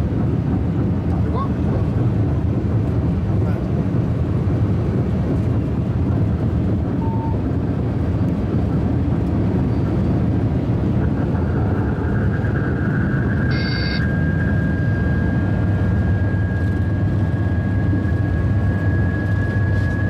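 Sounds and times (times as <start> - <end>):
train low rumble: 0.0 - 20.0
faint steady whine: 11.3 - 20.0
short high tone: 13.5 - 14.1.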